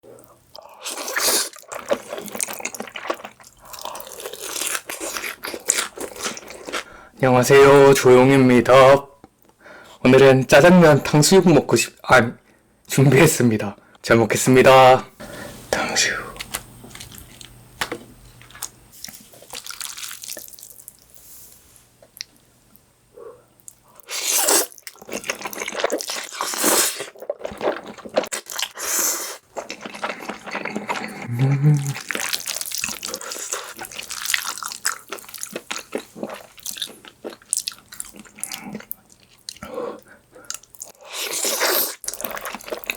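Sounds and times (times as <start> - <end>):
wet chewing and crunching: 0.2 - 7.0, 16.4 - 21.1, 23.6 - 42.9.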